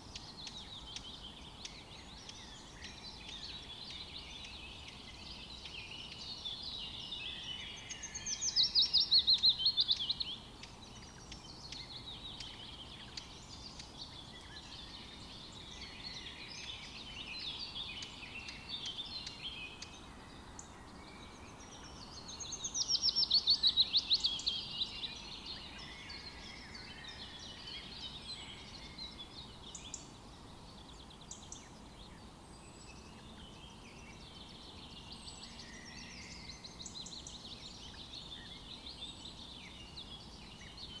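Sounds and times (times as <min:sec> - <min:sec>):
bird song of rapid falling notes: 0:00.0 - 0:41.0
songbirds singing and chirping: 0:00.0 - 0:41.0.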